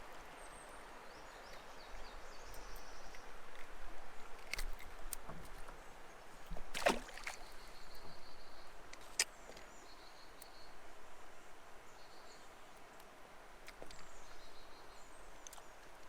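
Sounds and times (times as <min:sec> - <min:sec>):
water and kayak hull noises: 0:00.0 - 0:10.0.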